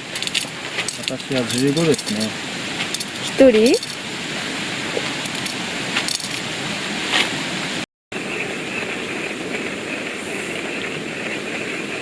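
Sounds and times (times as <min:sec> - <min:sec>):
steady hiss: 0:00.0 - 0:07.8
metallic utensil clinks: 0:00.1 - 0:02.3.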